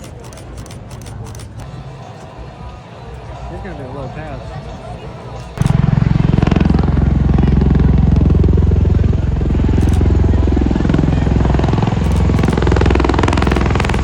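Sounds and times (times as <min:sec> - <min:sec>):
aircraft engine rumbling: 0:03.1 - 0:14.0.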